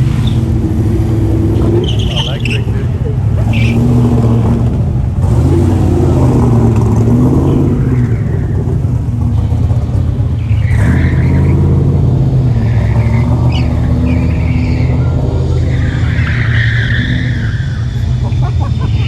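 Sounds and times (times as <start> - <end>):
tyres squealing: 0.0 - 0.7, 1.4 - 4.4, 12.6 - 19.0
car engine running under load: 0.0 - 19.0.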